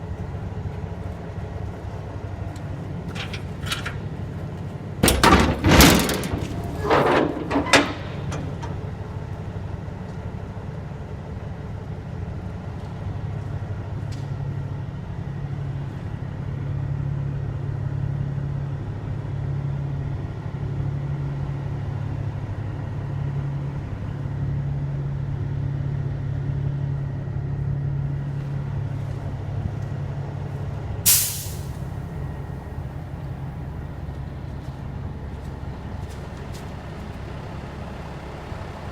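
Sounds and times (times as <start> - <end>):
diesel truck idling: 0.0 - 12.6, 31.1 - 38.9
air brake hiss: 31.1 - 32.0.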